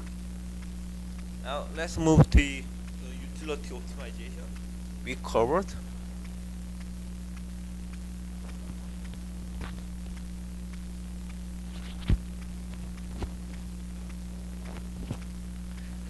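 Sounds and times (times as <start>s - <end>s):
electrical hum: 0.0s - 16.0s
faint clicks: 2.2s - 5.1s, 6.2s - 16.0s.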